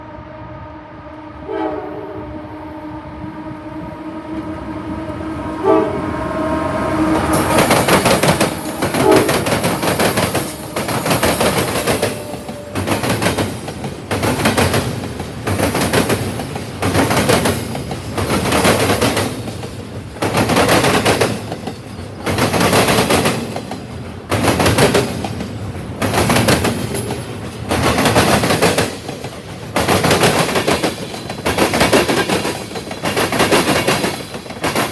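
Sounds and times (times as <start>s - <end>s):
train horn: 0.0s - 13.5s
train wheels clattering over rail joints: 7.3s - 34.9s.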